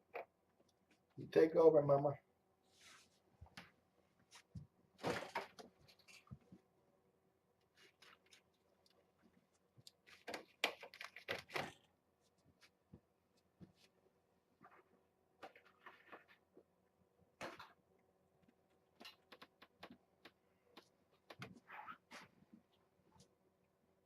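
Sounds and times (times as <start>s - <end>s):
faint knocks and rustles: 7.7s - 14.0s.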